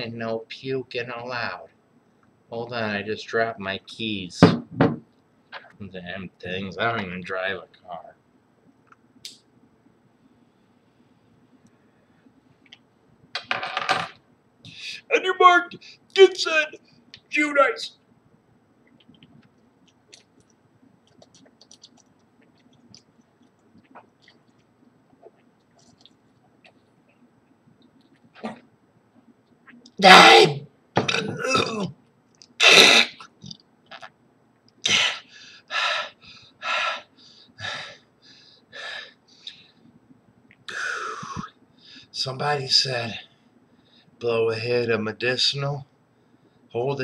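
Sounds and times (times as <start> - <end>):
man gulping and throat clicks: 18.8 - 30.0, 31.0 - 35.0.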